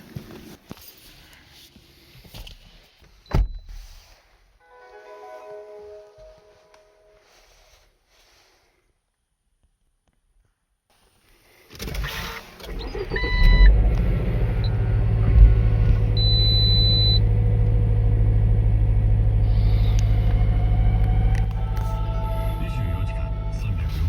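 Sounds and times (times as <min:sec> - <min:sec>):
car engine starting and idling: 0:11.9 - 0:24.0
long electronic beep: 0:16.2 - 0:17.2
short electronic beeps: 0:16.2 - 0:17.2.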